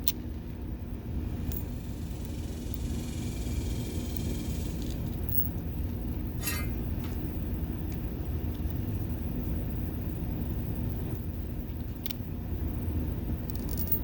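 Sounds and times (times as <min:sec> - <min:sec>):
short metallic rattle: 0:06.4 - 0:07.3.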